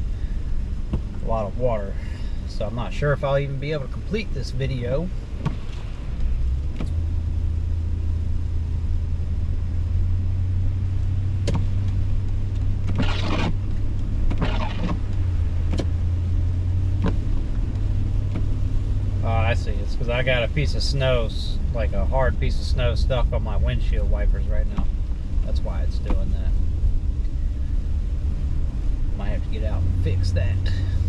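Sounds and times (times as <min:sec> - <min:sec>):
windshield wipers sweeping: 0:00.0 - 0:01.6, 0:05.0 - 0:07.5, 0:10.9 - 0:23.3, 0:23.9 - 0:31.0
car engine and tyres drone: 0:00.0 - 0:31.0.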